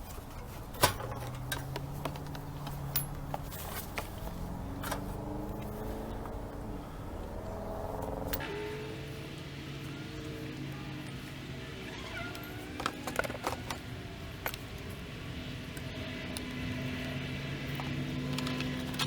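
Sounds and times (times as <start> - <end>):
background hum shifting pitch: 0.0 - 19.0
small parts and tools clicking: 12.0 - 15.0.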